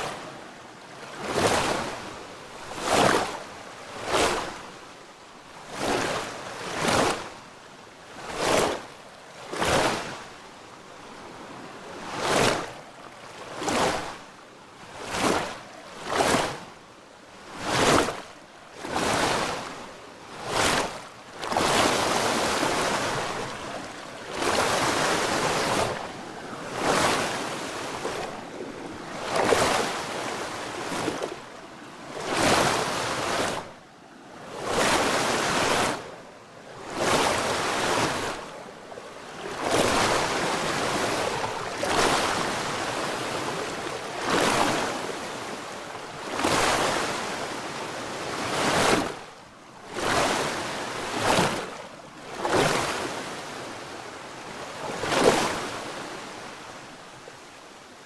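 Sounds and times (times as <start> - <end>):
small waves washing in: 0.0 - 58.0.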